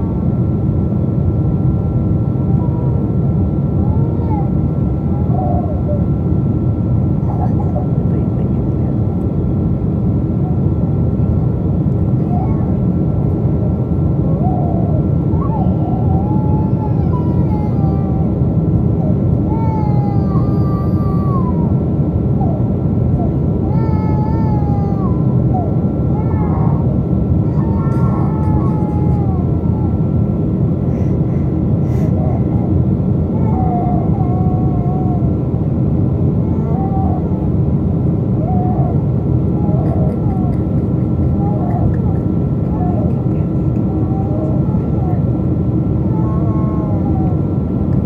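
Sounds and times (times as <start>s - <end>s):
airliner engine rumble in cabin: 0.0s - 48.0s
airflow: 26.8s - 33.3s.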